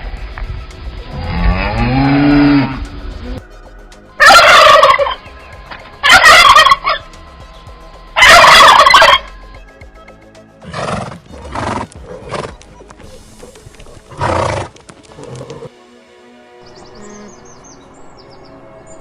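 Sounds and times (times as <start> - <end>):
low drawn-out turkey call: 4.2 - 5.2, 6.0 - 7.0, 8.2 - 9.3
turkey gobbling: 4.2 - 5.2, 6.0 - 7.0, 8.2 - 9.3.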